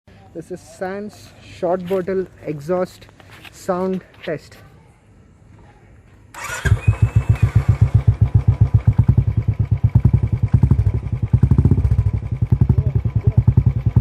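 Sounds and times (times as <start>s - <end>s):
motorcycle engine starting: 6.3s - 14.0s.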